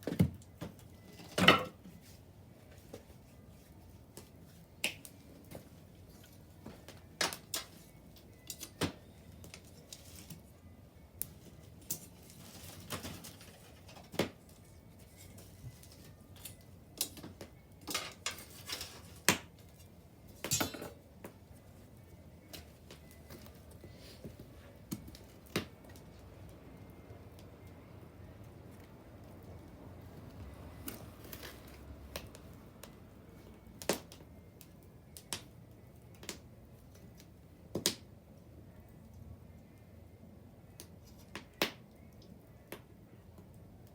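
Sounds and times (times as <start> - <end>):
bonfire crackling and popping: 4.0 - 23.8, 24.8 - 39.6, 40.7 - 43.9.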